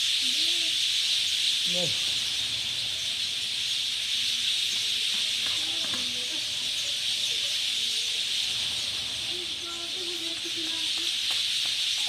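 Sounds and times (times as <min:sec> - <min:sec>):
chorus of birds chirping: 0:00.0 - 0:12.0
faint distant voices: 0:00.0 - 0:12.0.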